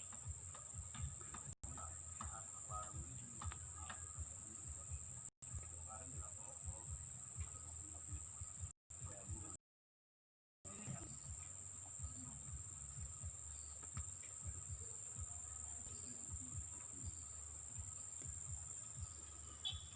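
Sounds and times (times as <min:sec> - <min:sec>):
insect trilling: 0:00.0 - 0:09.5, 0:10.7 - 0:19.9
muffled thumps on microphone: 0:00.0 - 0:09.6.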